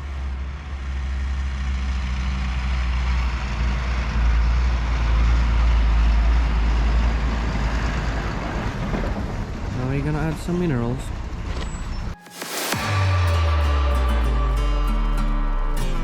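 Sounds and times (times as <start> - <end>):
heavy truck engine rumbling: 0.0 - 10.1, 11.1 - 16.0.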